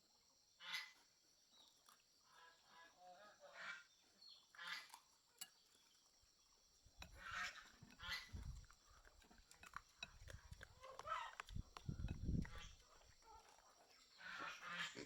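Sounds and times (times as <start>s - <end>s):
farm animals calling: 10.2s - 15.0s.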